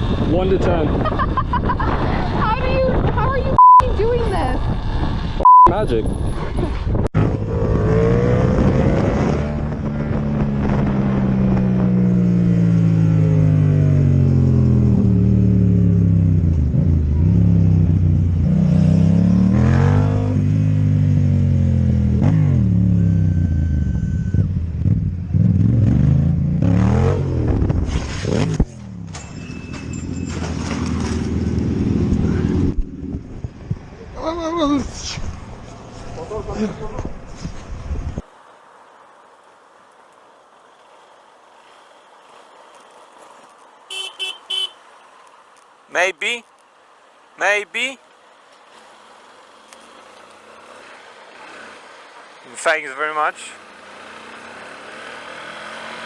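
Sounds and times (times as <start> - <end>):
motorcycle engine revving: 7.2 - 29.2, 49.0 - 52.4, 53.0 - 56.0.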